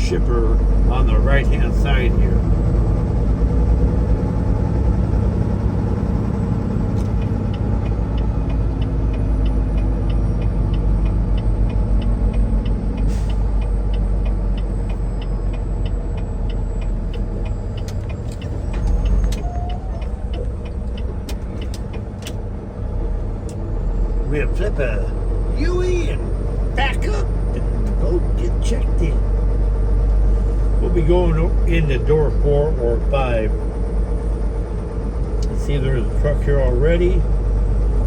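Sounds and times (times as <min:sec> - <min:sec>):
diesel truck engine running: 0:00.0 - 0:38.0
turn signal ticking: 0:02.4 - 0:23.8.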